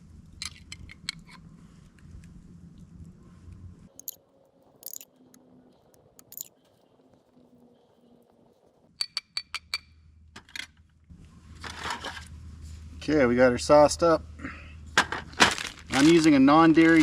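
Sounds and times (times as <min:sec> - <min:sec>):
utensil clinking against container: 0:04.8 - 0:05.0, 0:06.2 - 0:06.5.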